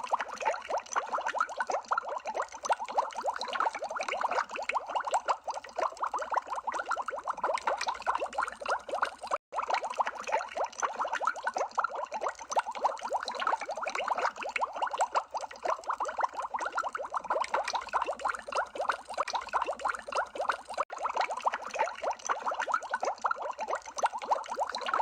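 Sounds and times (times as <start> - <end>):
underwater bubbles popping: 0.0 - 25.0.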